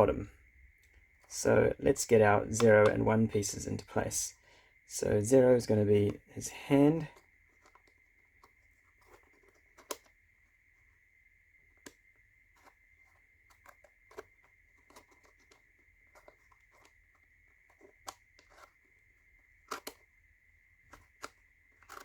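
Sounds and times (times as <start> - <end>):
wooden tiles clicking and knocking: 7.0 - 10.2, 12.6 - 20.1, 20.8 - 22.0.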